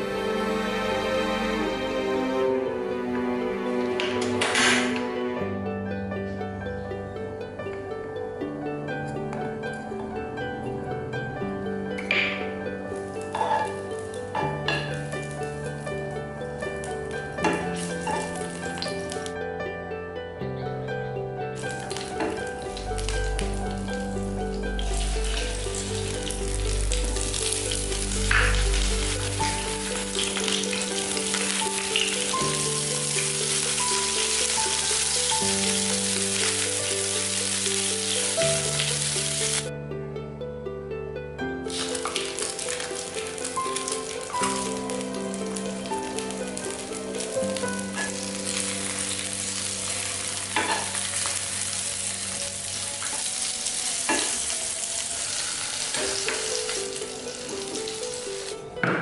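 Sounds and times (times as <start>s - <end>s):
background music with bass line: 0.0s - 53.0s
hot oil sizzling: 4.0s - 5.1s, 12.0s - 19.4s, 21.6s - 39.7s, 41.7s - 58.6s.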